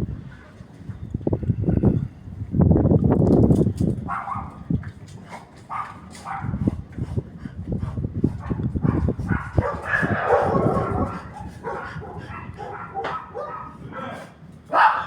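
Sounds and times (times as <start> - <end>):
dogs barking and yelping: 4.1 - 4.6, 5.2 - 6.8, 8.3 - 15.0
low rumbling: 6.5 - 13.0.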